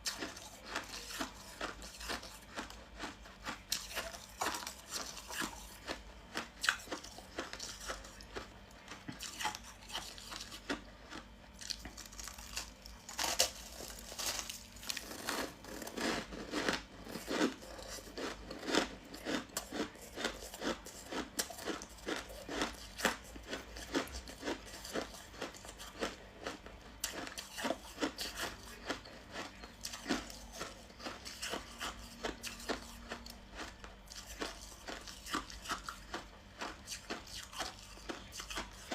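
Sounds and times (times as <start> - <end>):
chewing crunchy ice: 0.0 - 38.9.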